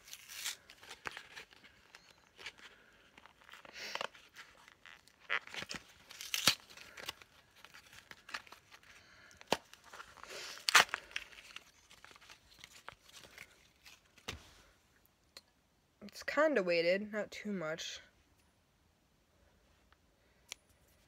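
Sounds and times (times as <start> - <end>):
packaging ripping and crinkling: 0.0 - 14.4.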